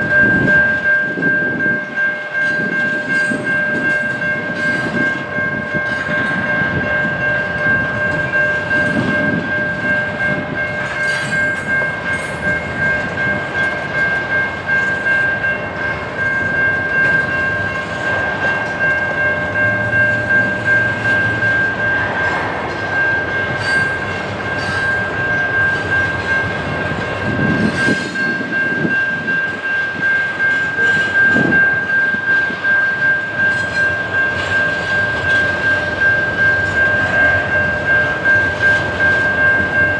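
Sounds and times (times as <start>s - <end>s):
high-pitched ringing tone: 0.0s - 39.9s
train wheels clicking over rails: 0.0s - 39.9s.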